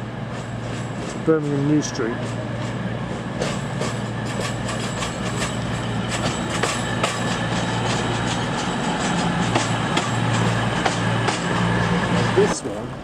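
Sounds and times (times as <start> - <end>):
diesel engine hum: 7.7 - 13.0.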